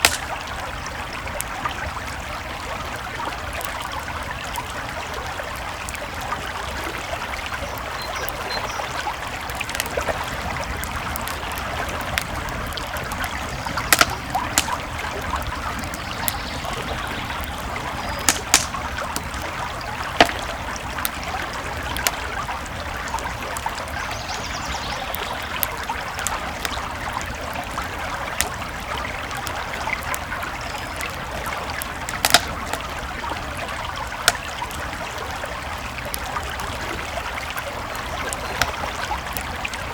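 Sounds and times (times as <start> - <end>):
sharp fire pops: 0.0 - 0.8, 9.6 - 22.4, 31.8 - 33.1, 34.2 - 34.7
campfire crackling: 0.0 - 39.9
creek water flowing: 0.0 - 39.9.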